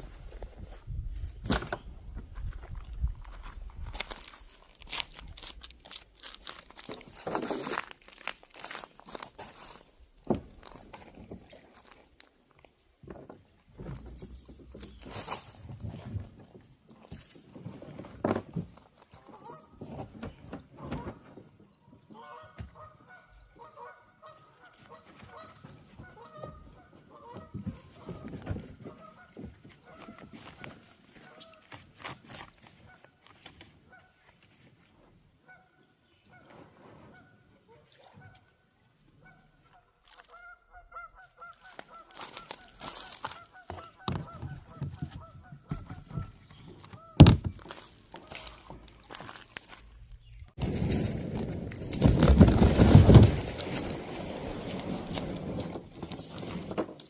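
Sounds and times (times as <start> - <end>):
birds calling: 39.2 - 50.6.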